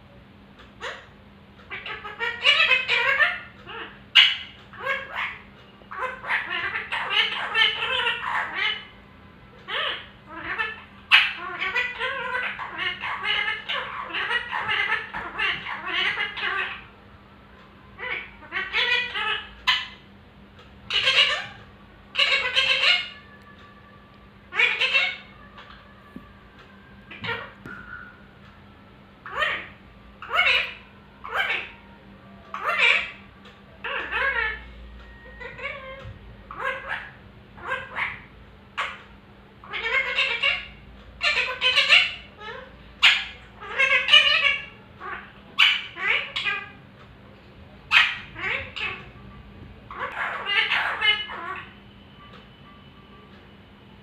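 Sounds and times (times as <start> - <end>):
parrot chattering: 0.7 - 9.0, 9.6 - 16.9, 18.0 - 20.1, 20.8 - 23.4, 24.5 - 25.8, 29.2 - 46.8, 47.9 - 51.8.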